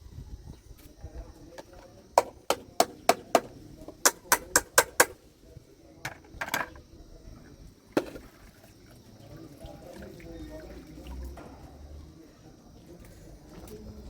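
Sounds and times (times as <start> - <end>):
sharp knocks: 2.2 - 5.2.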